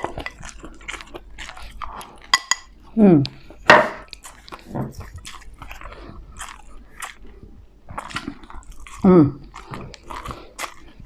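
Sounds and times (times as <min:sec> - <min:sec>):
wet chewing smacks: 0:03.2 - 0:11.0.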